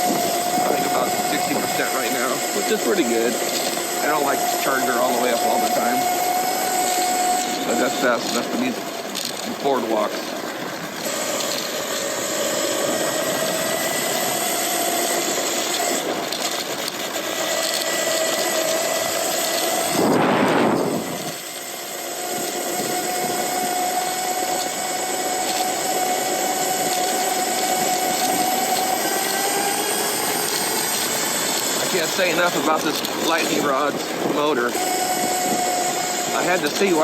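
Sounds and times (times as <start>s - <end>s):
electric motor whine: 0.0s - 37.0s
road and wind noise: 0.0s - 37.0s
loud rush of noise: 19.9s - 21.4s.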